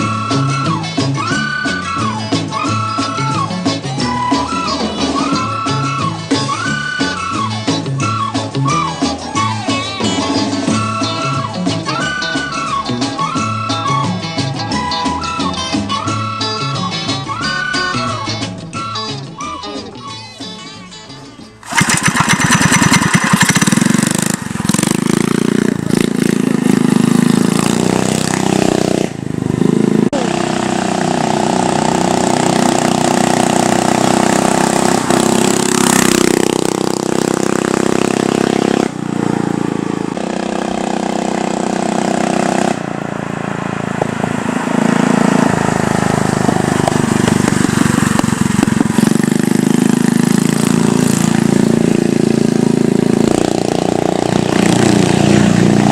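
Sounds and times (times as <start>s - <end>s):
small engine revving: 21.6s - 55.9s.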